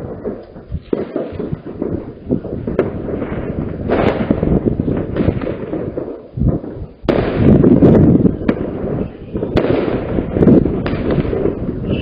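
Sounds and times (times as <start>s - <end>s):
fireworks rumbling bangs: 0.0s - 12.0s
sharp firecracker cracks: 0.0s - 12.0s.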